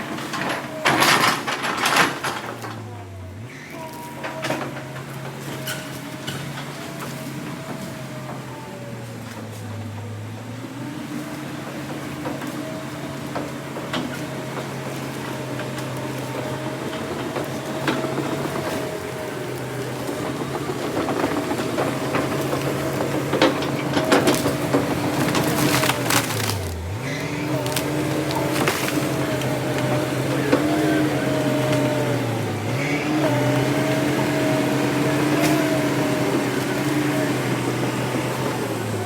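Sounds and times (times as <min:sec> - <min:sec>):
diesel machine engine running: 0:00.0 - 0:39.0
wood cracking and splintering: 0:13.9 - 0:39.0.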